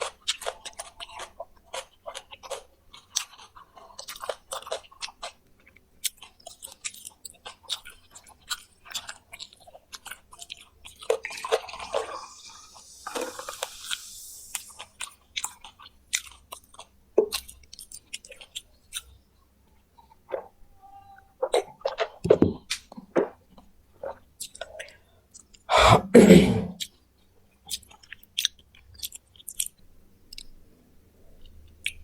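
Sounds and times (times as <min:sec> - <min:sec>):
wet munching: 0:00.0 - 0:19.1, 0:21.4 - 0:26.1, 0:27.7 - 0:30.5
chewing and crunching: 0:00.0 - 0:20.6, 0:21.4 - 0:25.7, 0:26.8 - 0:30.6, 0:31.2 - 0:32.0.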